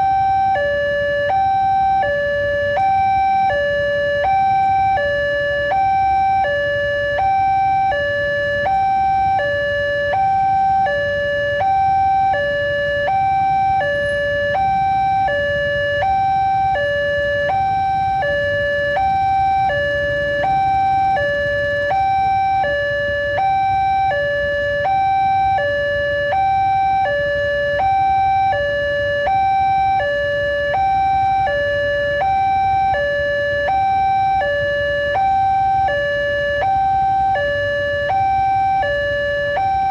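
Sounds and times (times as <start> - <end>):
level crossing two-tone alarm: 0.0 - 39.9.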